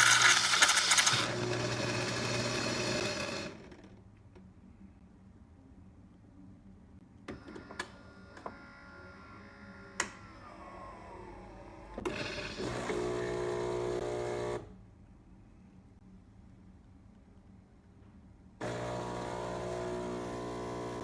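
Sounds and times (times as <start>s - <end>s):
espresso machine buzz: 0.0s - 3.5s, 12.3s - 14.7s, 18.6s - 21.0s
espresso machine whine: 0.0s - 3.6s, 11.9s - 14.7s, 18.6s - 21.0s.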